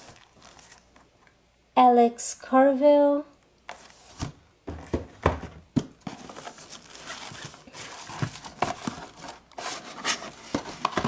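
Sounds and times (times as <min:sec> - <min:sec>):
plastic and card crinkling: 0:00.0 - 0:01.2, 0:05.8 - 0:11.0.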